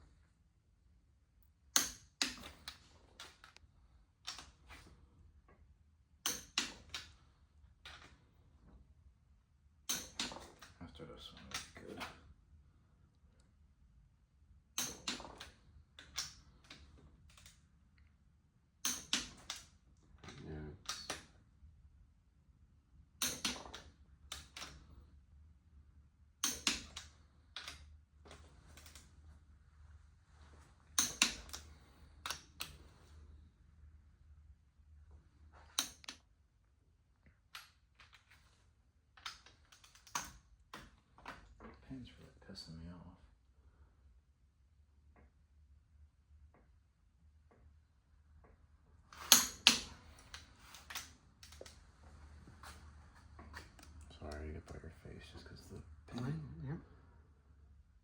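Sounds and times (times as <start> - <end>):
metallic clicks of hand tools: 1.8 - 3.6, 6.2 - 7.1, 9.9 - 10.7, 14.8 - 17.5, 18.8 - 19.7, 23.2 - 24.8, 26.4 - 27.8, 31.0 - 32.8, 35.8 - 36.2, 49.2 - 51.7.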